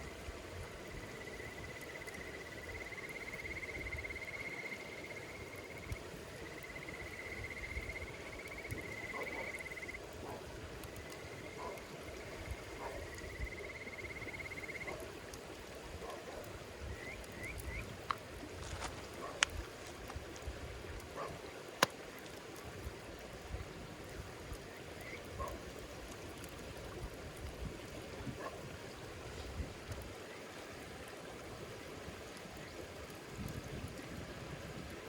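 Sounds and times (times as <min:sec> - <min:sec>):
wood fire crackling: 0:00.0 - 0:35.0
insect chirps: 0:00.7 - 0:10.1, 0:10.9 - 0:15.0, 0:16.9 - 0:18.9
fire pops: 0:16.9 - 0:30.2.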